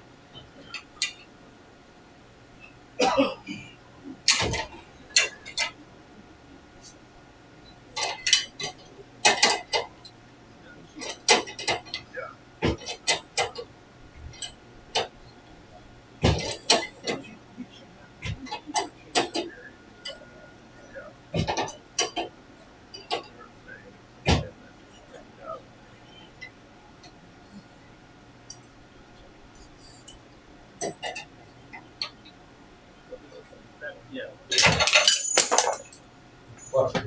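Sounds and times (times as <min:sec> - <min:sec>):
metal tools clinking: 0:34.5 - 0:36.0.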